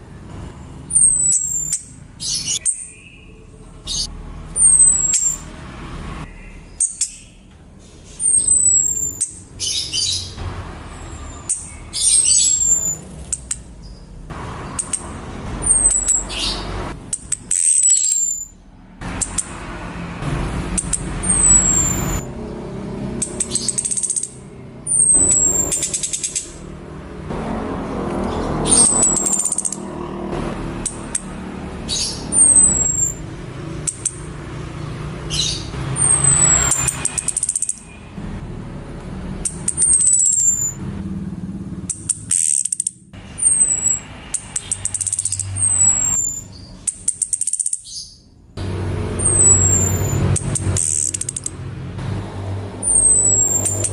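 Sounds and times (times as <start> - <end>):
buzzy rattling bird calls: 0.4 - 5.6, 6.2 - 38.2, 39.2 - 48.2, 49.1 - 53.9
thrush whistling: 15.6 - 18.6, 20.8 - 22.4, 23.2 - 26.7, 28.6 - 29.8, 31.9 - 34.3, 35.3 - 38.1, 39.4 - 40.9, 41.9 - 48.2, 49.2 - 51.6, 52.8 - 53.9.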